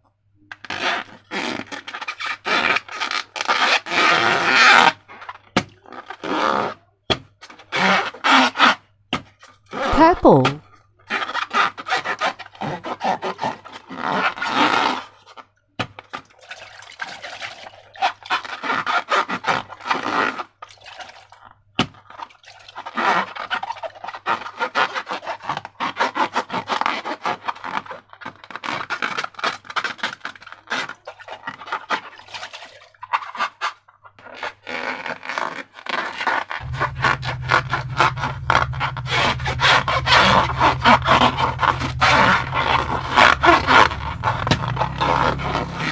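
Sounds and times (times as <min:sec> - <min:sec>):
low steady hum: 0:36.6 - 0:45.9.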